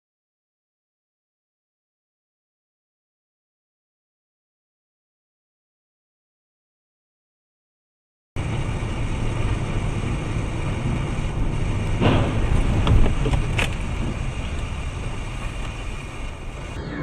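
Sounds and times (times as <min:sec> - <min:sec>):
car engine and road noise: 0:08.4 - 0:17.0
short knocks: 0:11.8 - 0:16.0.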